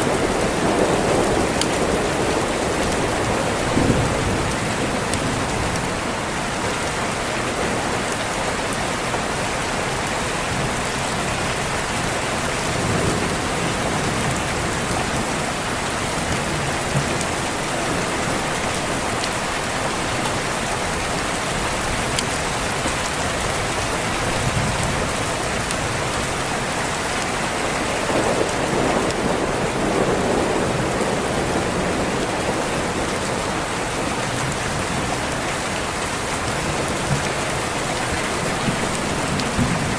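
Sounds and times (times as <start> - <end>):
thunder rolling: 0.0 - 6.0, 27.8 - 33.8
heavy rain on a window: 0.0 - 39.9.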